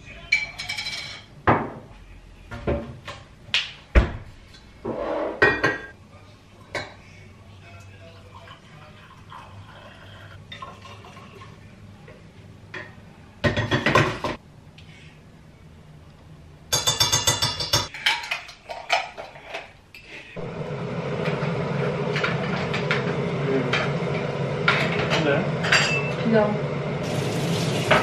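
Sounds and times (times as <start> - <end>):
dishes and cutlery clattering: 0.3 - 1.8, 4.9 - 6.0, 16.7 - 19.8.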